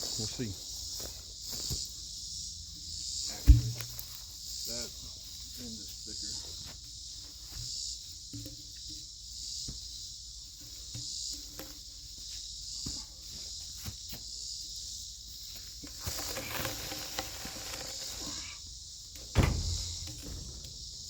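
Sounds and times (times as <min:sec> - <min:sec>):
insects chirping: 0:00.0 - 0:21.0
rustling: 0:15.5 - 0:21.0.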